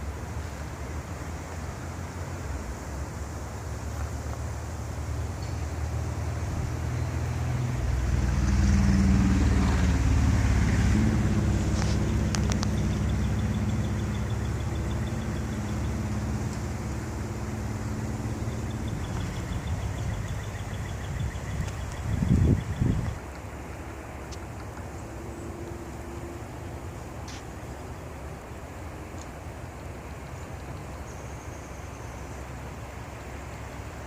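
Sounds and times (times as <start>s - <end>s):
wind gusting over microphone: 0.0s - 29.6s
faint clicks: 11.8s - 12.9s.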